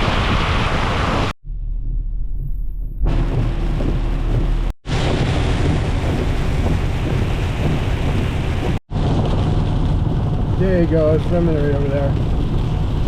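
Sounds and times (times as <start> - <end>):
deep low rumble: 0.0 - 13.0
heavy rain pouring: 3.1 - 13.0.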